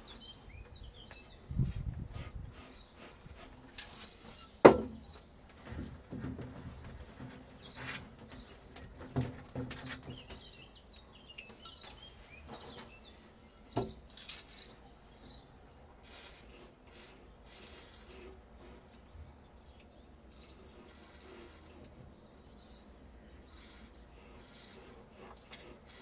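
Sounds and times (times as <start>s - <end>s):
birds chirping: 0.0s - 3.1s, 6.8s - 16.0s, 18.1s - 25.8s.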